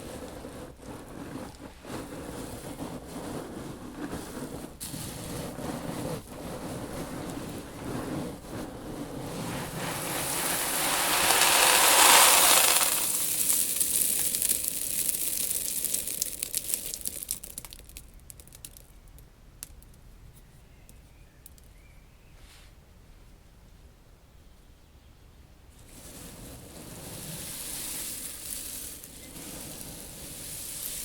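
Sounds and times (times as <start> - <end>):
seeds rustling and sliding: 0.0 - 18.8, 25.8 - 31.0
seeds ticking as they settle: 9.7 - 20.1, 26.9 - 31.0.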